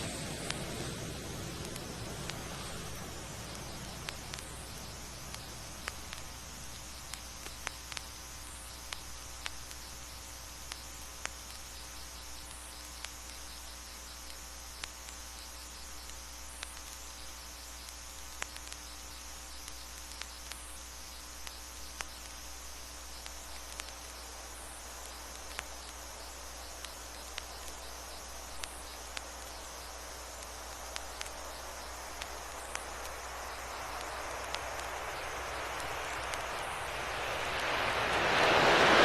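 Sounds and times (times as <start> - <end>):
vinyl record surface clicks: 0.0 - 10.0, 17.8 - 18.9, 23.2 - 39.0
crickets chirping: 0.0 - 39.0
low steady hum: 0.0 - 39.0.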